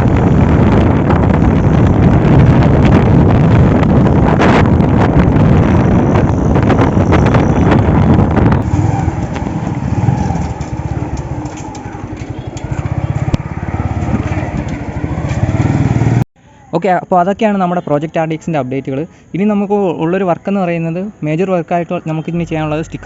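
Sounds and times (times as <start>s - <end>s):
wind buffeting microphone: 0.0s - 16.2s
two-stroke motorcycle engine: 8.6s - 16.3s.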